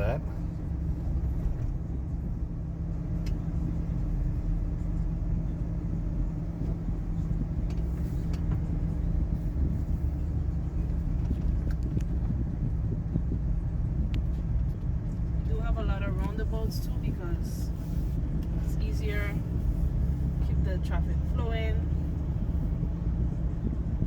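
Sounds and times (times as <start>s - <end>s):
car engine and tyre rumble: 0.0s - 24.0s.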